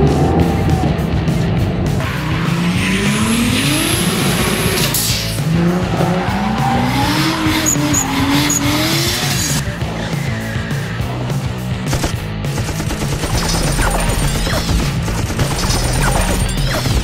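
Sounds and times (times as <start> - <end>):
background music: 0.0 - 17.0
car engine revving: 0.0 - 17.0
tyre screech: 2.0 - 11.4.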